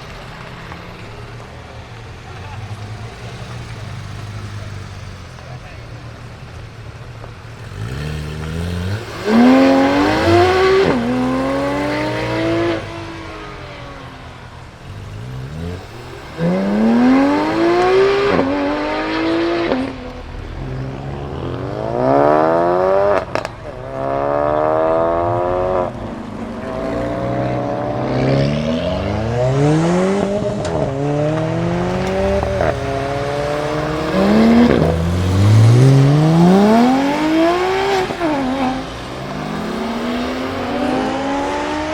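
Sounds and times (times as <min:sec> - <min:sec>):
car engines accelerating: 0:00.0 - 0:41.9.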